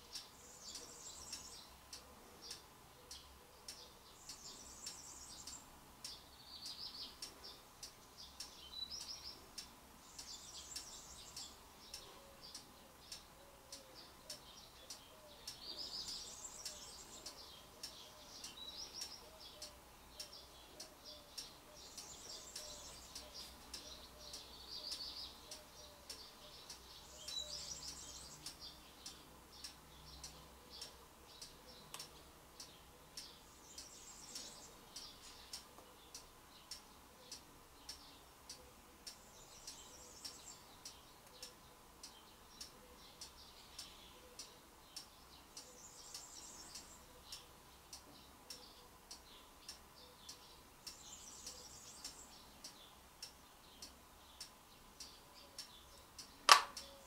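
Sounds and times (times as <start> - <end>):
faint birdsong: 0.0 - 57.0
steady ticking: 7.1 - 15.6, 27.9 - 33.9.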